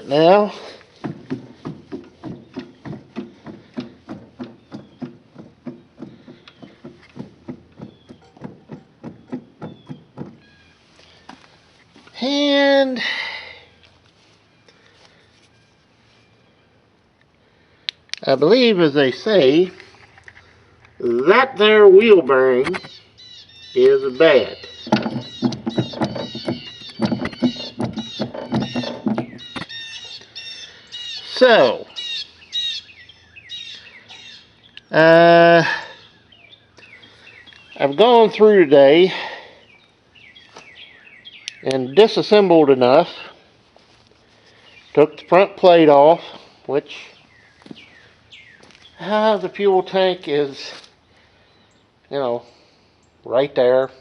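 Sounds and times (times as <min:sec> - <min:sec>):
rhythmic metallic clunking: 0:00.0 - 0:11.5, 0:20.9 - 0:30.2
small birds chirping: 0:00.0 - 0:54.0.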